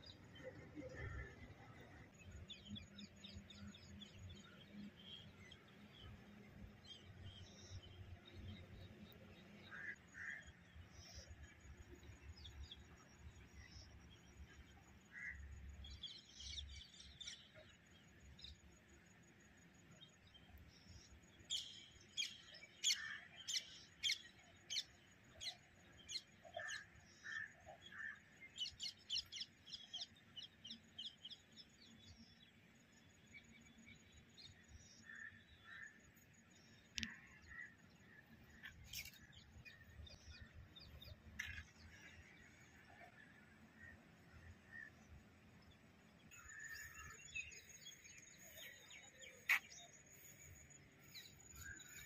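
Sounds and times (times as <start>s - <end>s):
faint low background noise: 0.0s - 52.0s
birds chirping: 20.1s - 52.0s.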